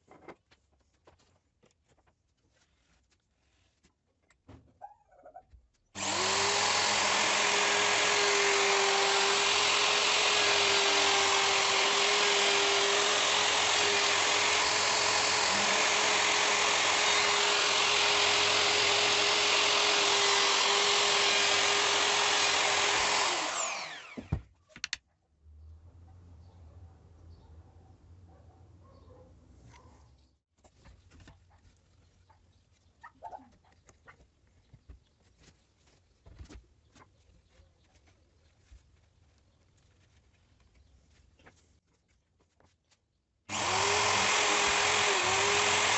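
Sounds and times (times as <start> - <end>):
electric router running: 6.0 - 24.3, 43.5 - 45.9
router spinning down whine: 6.0 - 24.4, 43.5 - 45.9.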